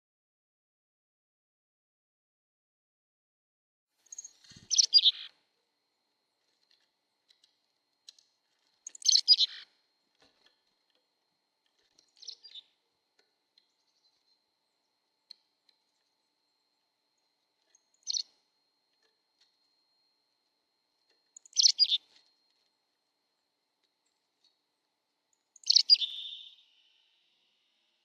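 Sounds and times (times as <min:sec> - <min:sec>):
bird chirping: 0:04.1 - 0:05.3, 0:08.8 - 0:09.7, 0:12.0 - 0:12.8, 0:17.7 - 0:18.4, 0:21.4 - 0:22.2, 0:25.4 - 0:28.0.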